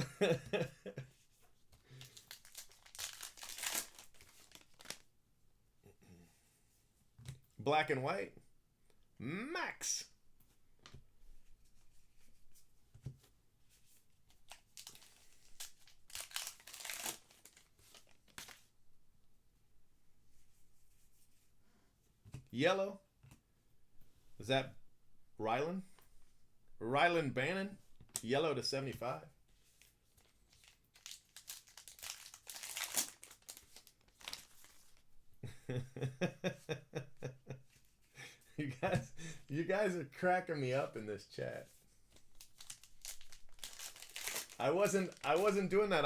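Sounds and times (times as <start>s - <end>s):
card wrappers crinkling and tearing: 1.8s - 5.1s, 14.3s - 18.7s, 30.2s - 35.0s, 42.1s - 46.0s.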